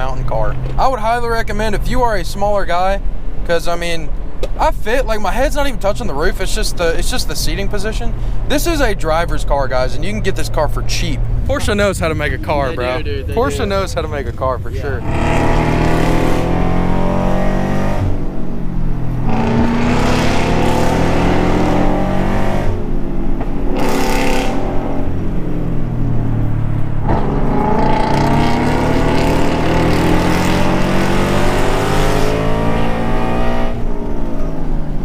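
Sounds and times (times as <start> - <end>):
sports car engine revving: 10.2 - 34.9.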